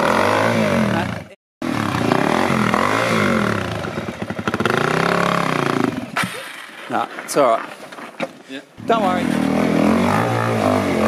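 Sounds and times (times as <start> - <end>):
motorcycle engine revving: 0.0 - 6.2, 8.8 - 11.0.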